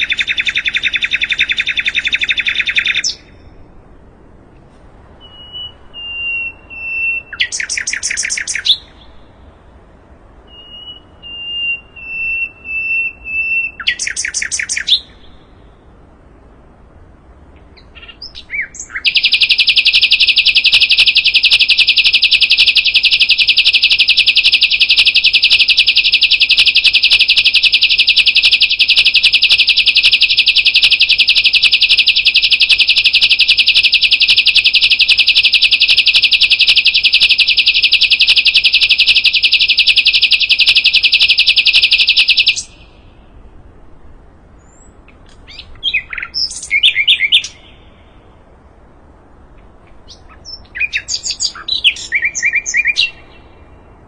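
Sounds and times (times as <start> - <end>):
bird rapid rattling trill: 0.0 - 3.3, 5.4 - 9.0, 10.6 - 15.2, 17.8 - 43.1
bird buzzy trill: 0.0 - 3.6, 5.2 - 15.8, 17.5 - 43.4
bird whistled note: 5.2 - 8.8, 10.5 - 15.1.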